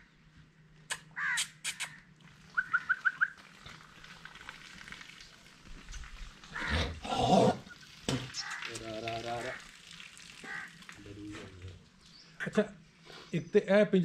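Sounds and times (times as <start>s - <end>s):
birds calling: 0.9s - 4.0s, 5.8s - 9.7s, 10.4s - 13.7s.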